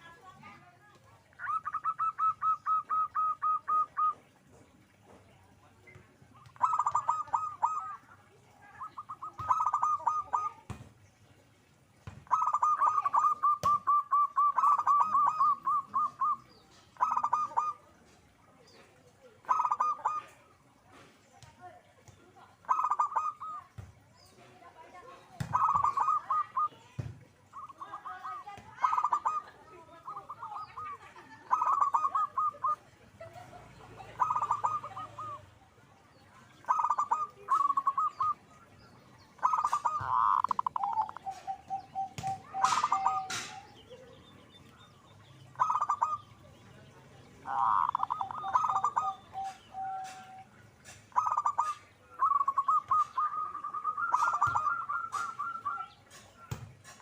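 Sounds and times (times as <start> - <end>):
dove trill: 1.2 - 4.9, 6.4 - 10.9, 12.1 - 17.8, 19.4 - 20.4, 22.6 - 24.5, 25.4 - 35.5, 36.5 - 46.5, 47.4 - 57.0
dove cooing: 1.3 - 4.9, 6.4 - 10.8, 12.2 - 17.9, 18.7 - 20.5, 22.6 - 23.8, 25.4 - 35.6, 36.5 - 38.6, 39.4 - 44.6, 45.5 - 46.4, 47.4 - 57.0.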